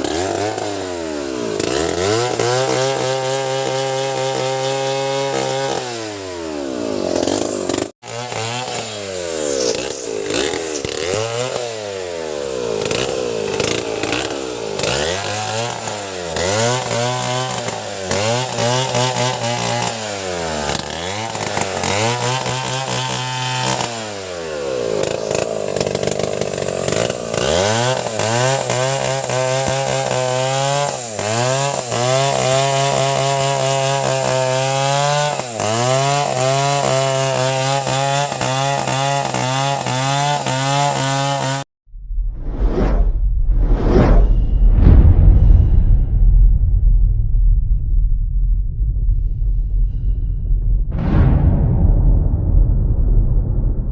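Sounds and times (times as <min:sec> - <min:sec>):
chainsaw engine revving: 0:00.0 - 0:41.7.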